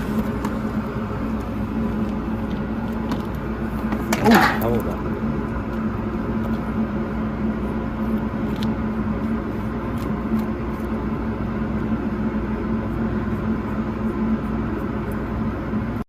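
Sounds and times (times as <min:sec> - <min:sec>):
vacuum cleaner running: 0:00.0 - 0:04.1.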